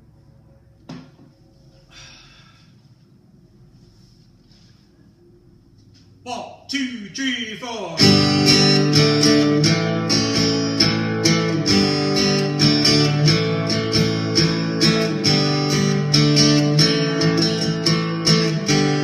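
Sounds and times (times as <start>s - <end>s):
guitar strumming chords: 7.9s - 19.0s.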